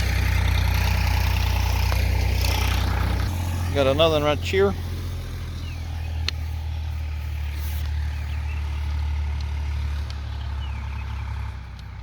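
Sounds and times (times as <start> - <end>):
vehicle engine rumbling: 0.0 - 12.0
faint bird chirps: 5.4 - 9.0.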